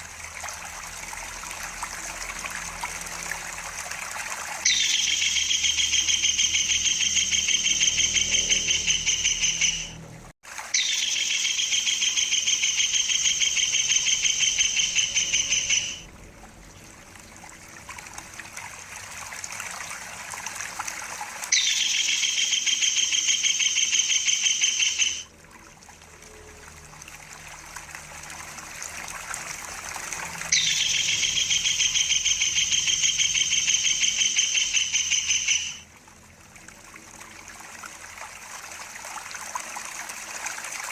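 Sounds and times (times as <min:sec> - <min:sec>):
stream trickling and splashing: 0:00.0 - 0:40.9
kingfisher rolling trill: 0:04.6 - 0:10.0, 0:10.8 - 0:16.0, 0:30.5 - 0:35.8.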